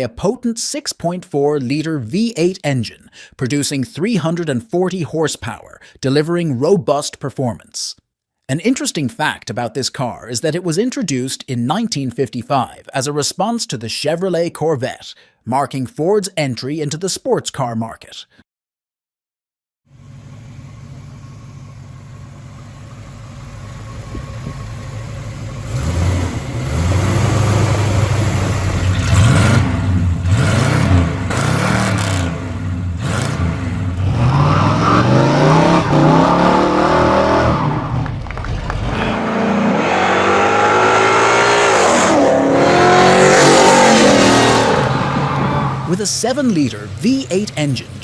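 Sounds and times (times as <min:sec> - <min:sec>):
car engine idling and revving: 0:19.9 - 0:48.0.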